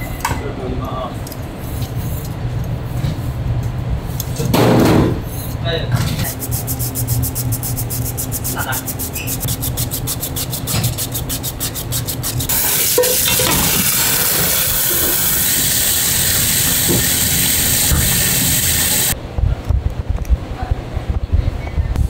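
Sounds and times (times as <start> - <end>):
rhythmic scraping strokes: 6.2 - 19.2
food sizzling in hot pan: 12.5 - 19.2.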